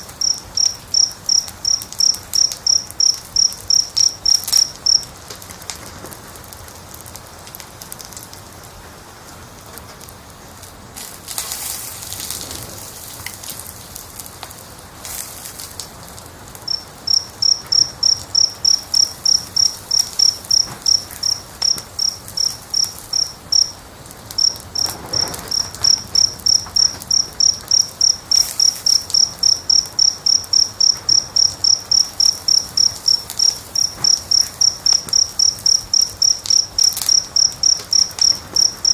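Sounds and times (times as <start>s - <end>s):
cricket chirping: 0.0s - 5.2s, 16.4s - 38.9s
crackling fire: 0.0s - 38.9s.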